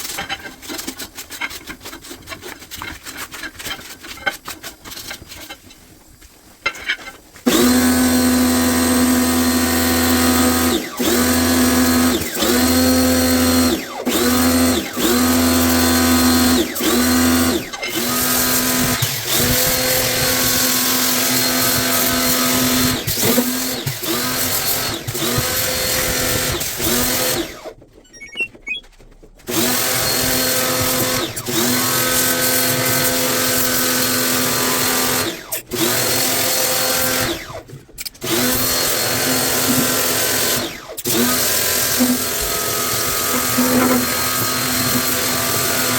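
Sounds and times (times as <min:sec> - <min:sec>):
power drill whining: 0:07.5 - 0:27.7, 0:29.5 - 0:37.6, 0:38.2 - 0:45.9.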